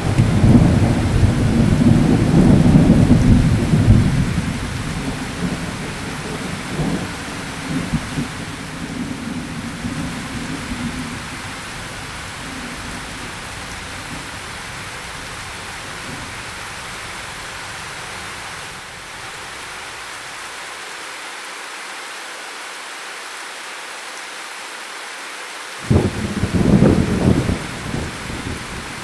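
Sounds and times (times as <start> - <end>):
loud thunderclap: 0.0 - 11.5, 25.8 - 29.0
low thunder rumble: 0.0 - 18.4, 25.8 - 29.0
steady rain: 0.0 - 29.0.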